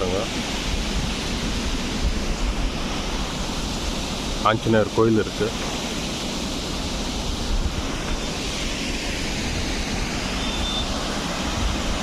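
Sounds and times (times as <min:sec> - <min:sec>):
water rushing at a dam: 0:00.0 - 0:12.0
wind buffeting microphone: 0:05.6 - 0:12.0.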